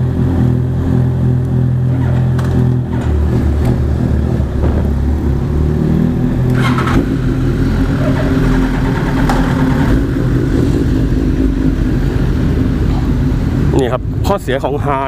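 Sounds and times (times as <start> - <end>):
motorcycle engine idling: 1.0 - 15.0.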